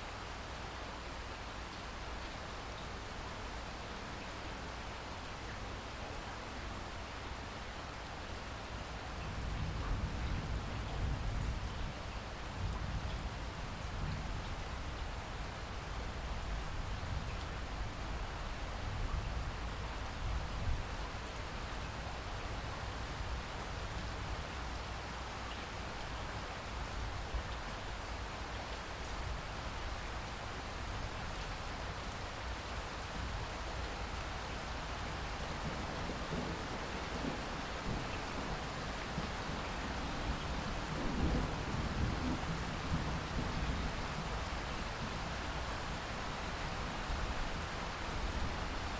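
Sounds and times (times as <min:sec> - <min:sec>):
rain pattering on surfaces: 0:00.0 - 0:48.9
thunder rumbling: 0:35.6 - 0:44.3.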